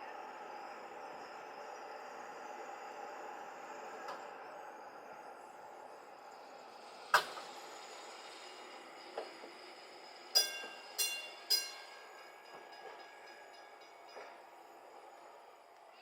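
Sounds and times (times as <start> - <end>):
streetcar bell ringing: 10.3 - 15.3.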